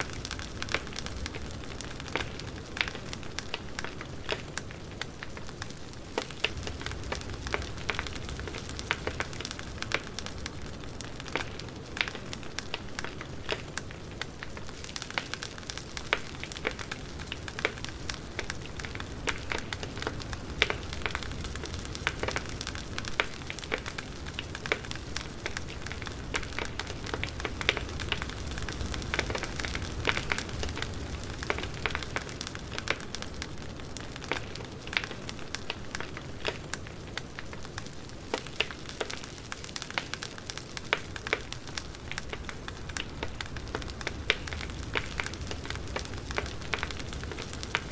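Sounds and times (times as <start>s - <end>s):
campfire crackling and popping: 0.0s - 47.9s.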